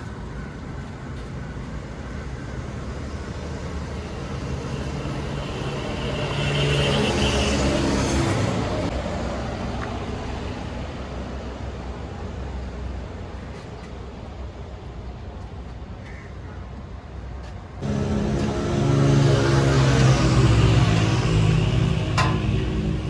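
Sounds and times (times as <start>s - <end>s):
steady traffic noise: 0.0s - 23.0s
vehicle passing close by: 3.7s - 8.9s, 17.8s - 23.0s.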